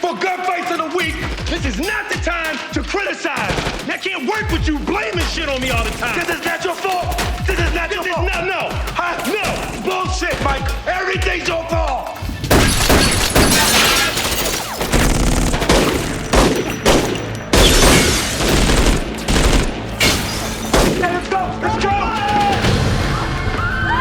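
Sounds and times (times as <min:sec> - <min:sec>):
rapid gunfire bursts: 0:00.0 - 0:11.4, 0:12.5 - 0:20.0
loud impacts: 0:12.2 - 0:21.6.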